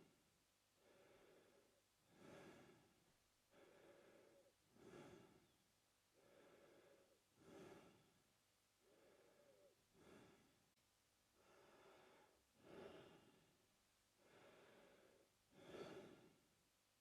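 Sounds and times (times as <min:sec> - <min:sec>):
man breathing through mouth: 0:00.8 - 0:02.9, 0:03.5 - 0:05.6, 0:06.2 - 0:08.2, 0:08.8 - 0:10.6, 0:11.4 - 0:13.4, 0:14.2 - 0:16.4.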